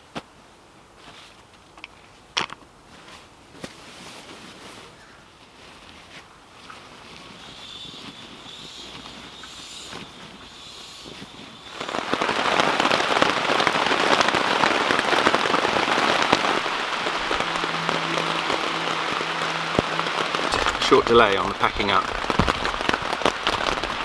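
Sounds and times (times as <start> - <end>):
rain falling: 6.6 - 24.0
heavy downpour hitting a surface: 7.0 - 24.0.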